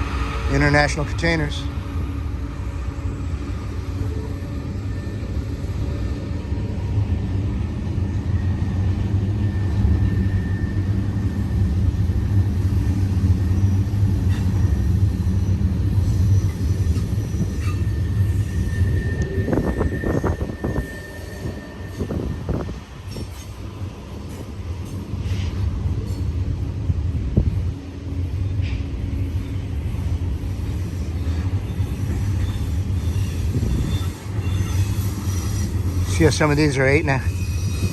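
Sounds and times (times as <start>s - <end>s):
train wheels rumbling on rails: 0.0s - 37.9s
faint wheel squeal: 13.5s - 23.6s, 30.8s - 37.9s.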